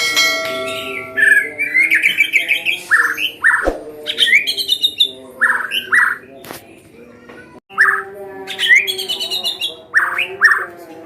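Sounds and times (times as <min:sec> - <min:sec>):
songbirds calling: 0:00.0 - 0:11.0.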